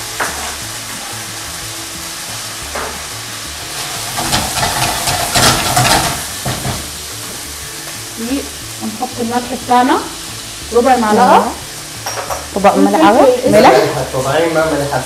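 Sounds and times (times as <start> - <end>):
food sizzling in oil: 0.0 - 15.0
spatula scraping a pan: 3.6 - 6.8.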